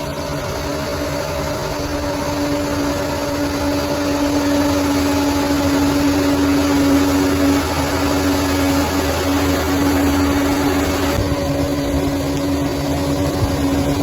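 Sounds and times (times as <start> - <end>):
bulldozer diesel engine running: 0.0 - 14.0.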